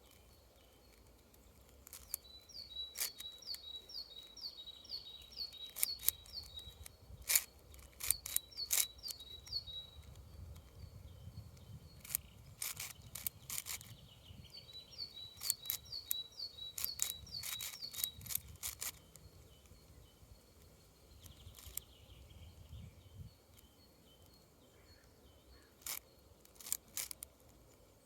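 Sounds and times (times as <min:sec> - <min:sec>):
small bird singing: 0:00.0 - 0:28.0
puzzle cube clicking as turned: 0:00.9 - 0:03.7, 0:05.3 - 0:10.8, 0:11.5 - 0:19.8, 0:21.2 - 0:21.9, 0:25.8 - 0:27.8.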